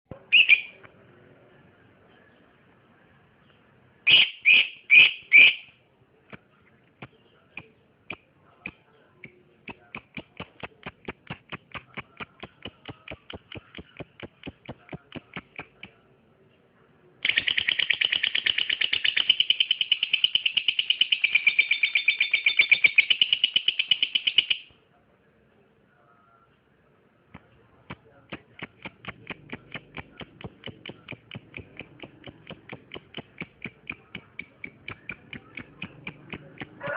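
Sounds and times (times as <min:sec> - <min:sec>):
bird chirping and chattering: 0:00.1 - 0:00.8, 0:06.7 - 0:16.0, 0:17.2 - 0:24.7, 0:27.4 - 0:36.8.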